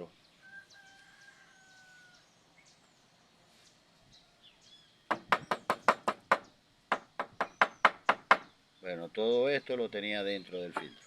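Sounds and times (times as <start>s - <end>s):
rapid sharp knocks on hard surface: 5.1s - 8.5s
faint bird chirps: 7.4s - 11.0s.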